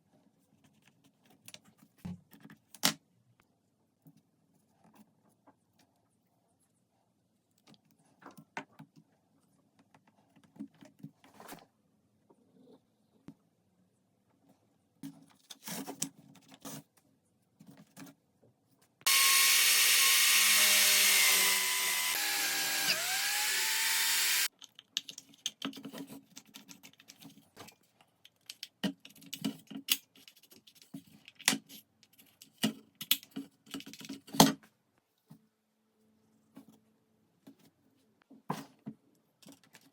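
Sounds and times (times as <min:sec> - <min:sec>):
power tool cutting wood: 0:19.1 - 0:24.5.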